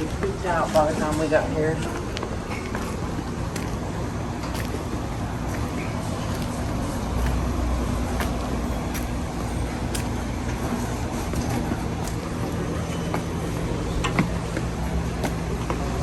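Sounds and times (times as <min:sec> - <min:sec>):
low hum of vehicle noise: 0:00.0 - 0:16.0.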